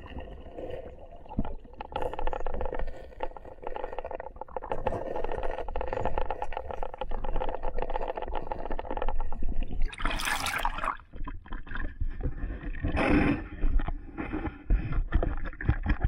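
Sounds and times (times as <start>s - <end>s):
small clicks and knocks underwater: 0.0s - 16.0s
water splashing: 9.7s - 11.8s.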